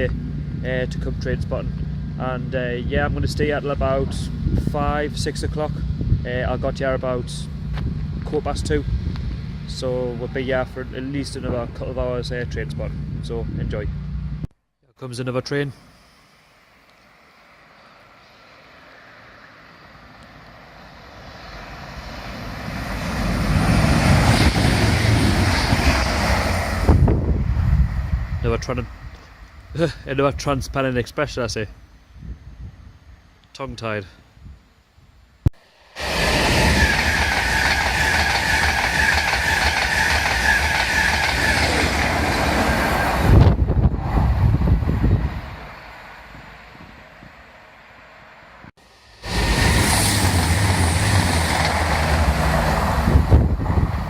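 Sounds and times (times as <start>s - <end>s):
diesel train rumbling: 0.0s - 14.5s, 18.9s - 30.9s, 35.8s - 54.0s
train wheels rushing on rail: 21.2s - 28.2s, 36.0s - 45.8s, 49.0s - 54.0s.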